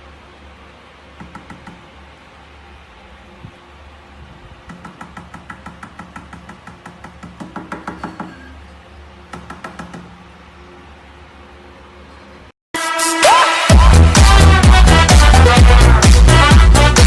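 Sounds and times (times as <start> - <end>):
low steady hum: 0.0 - 12.5
rapid tapping: 4.6 - 8.3.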